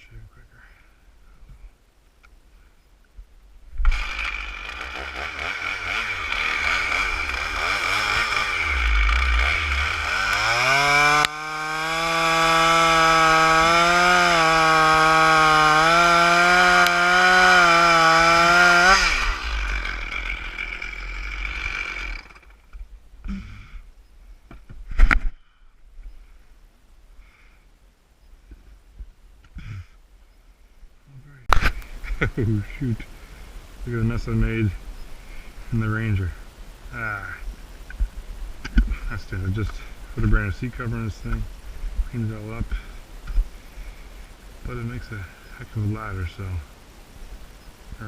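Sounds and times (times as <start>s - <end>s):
chainsaw revving and cutting: 3.8s - 22.7s.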